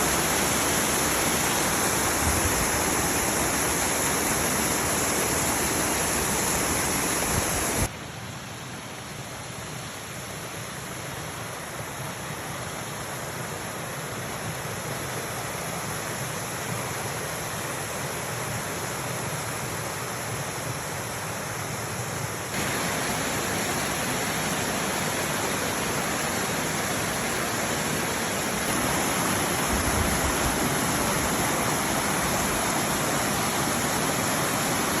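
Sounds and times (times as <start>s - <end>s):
rainwater rushing: 0.0s - 7.9s, 22.5s - 35.0s.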